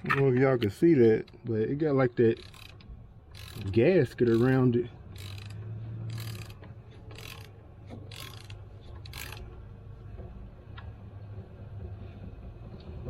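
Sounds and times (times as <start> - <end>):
hand tool rasping click: 2.3 - 9.5.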